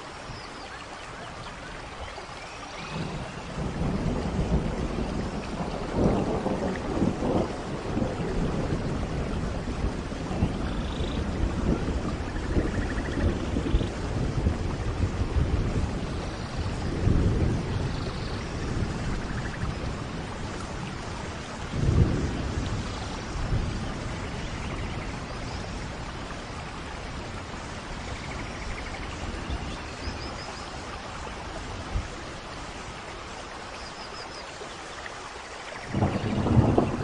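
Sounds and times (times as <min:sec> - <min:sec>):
steady rain hiss: 0:00.0 - 0:37.0
rolling thunder: 0:02.8 - 0:30.4, 0:35.8 - 0:37.0.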